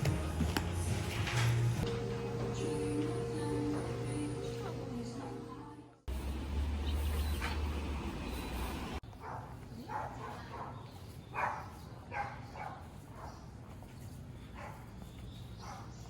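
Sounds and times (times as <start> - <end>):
dog barking: 9.1 - 13.4, 14.5 - 15.0, 15.6 - 16.0.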